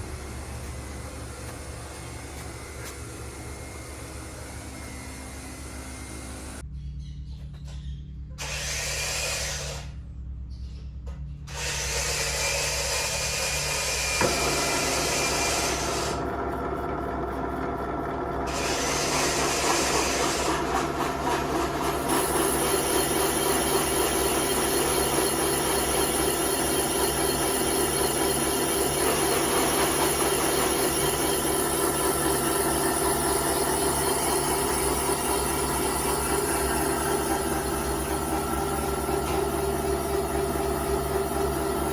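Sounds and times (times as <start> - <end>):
tool motor hum: 0.0 - 6.6, 8.4 - 10.0, 11.5 - 41.9
tool cutting metal: 8.4 - 10.0, 11.5 - 41.9.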